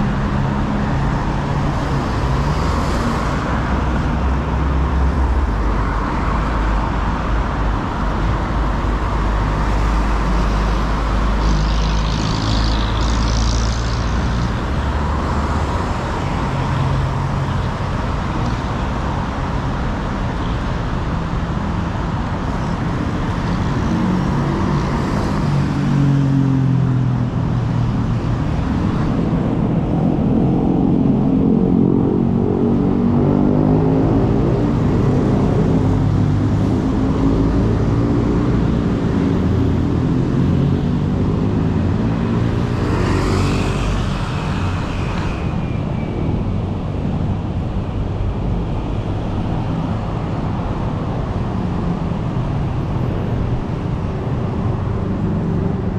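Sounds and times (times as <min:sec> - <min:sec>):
cars passing: 0:00.0 - 0:55.9
engine revving: 0:39.4 - 0:45.5.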